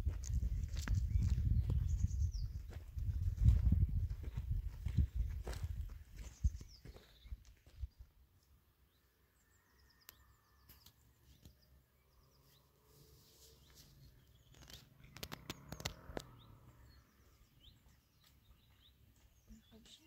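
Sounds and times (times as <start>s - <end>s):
small bird chirps: 0.6s - 2.7s, 8.9s - 20.0s.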